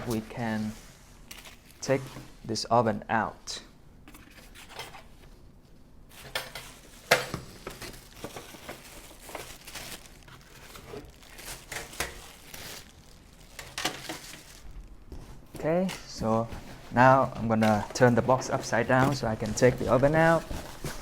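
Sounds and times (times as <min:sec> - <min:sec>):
packaging crinkling: 0:00.0 - 0:01.9, 0:06.1 - 0:21.0.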